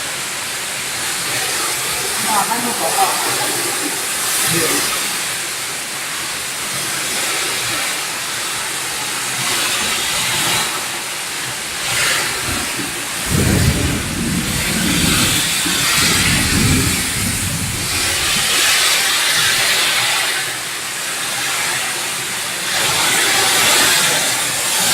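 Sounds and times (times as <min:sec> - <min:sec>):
heavy rain pouring: 0:00.0 - 0:24.9
wind gusts: 0:09.6 - 0:20.3.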